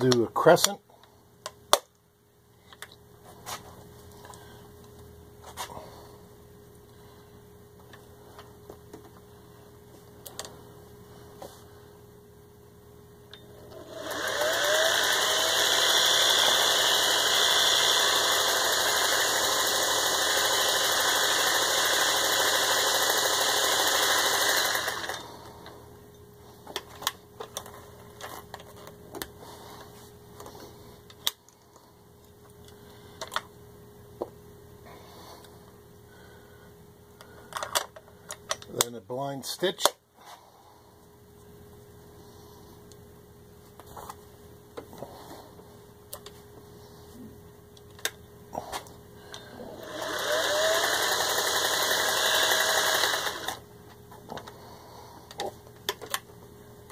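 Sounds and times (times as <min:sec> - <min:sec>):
sewing machine running: 0:13.7 - 0:25.3, 0:49.8 - 0:53.6.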